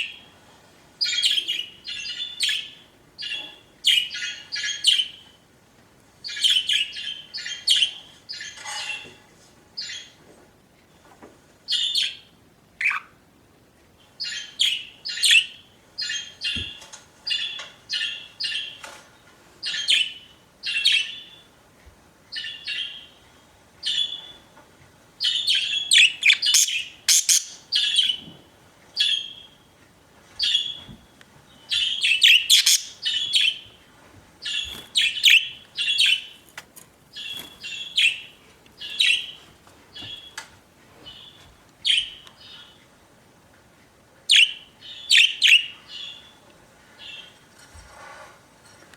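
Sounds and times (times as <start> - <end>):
budgerigars chirping: 1.0 - 5.2, 6.2 - 9.0, 11.7 - 13.2, 14.2 - 18.8, 25.2 - 28.2, 30.4 - 30.8, 31.6 - 33.7, 34.4 - 36.4, 37.1 - 40.4, 41.1 - 42.8, 44.3 - 46.3.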